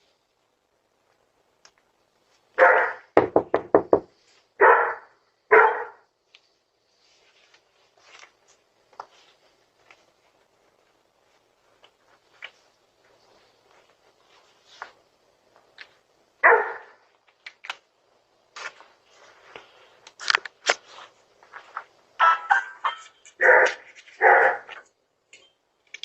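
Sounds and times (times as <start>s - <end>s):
dog barking: 2.6s - 3.1s, 4.6s - 6.1s, 16.4s - 17.0s, 23.4s - 24.8s
knocking on a door: 3.2s - 4.1s.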